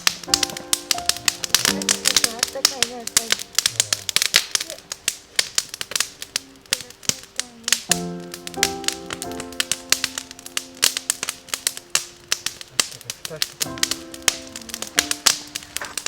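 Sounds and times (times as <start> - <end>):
background music with held chords: 0.0 - 4.4, 7.7 - 16.0
campfire crackling and popping: 0.0 - 16.0.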